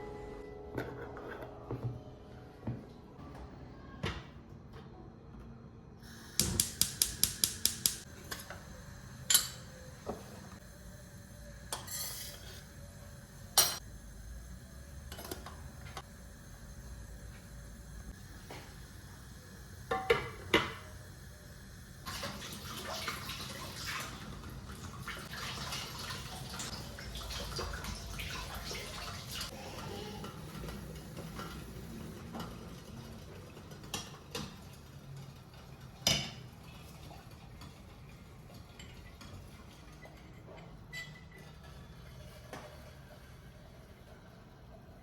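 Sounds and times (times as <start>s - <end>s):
dishes clinking: 40.0s - 41.7s.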